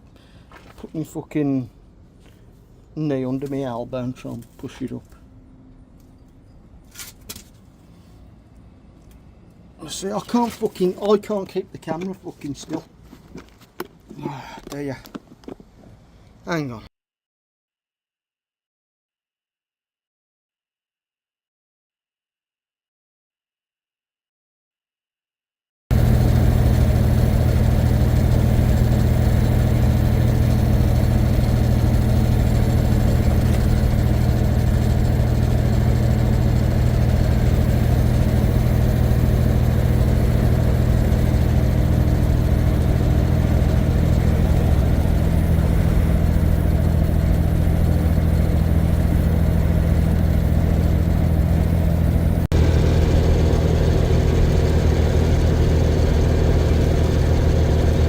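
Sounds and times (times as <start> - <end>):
truck diesel engine droning: 25.9 - 58.0.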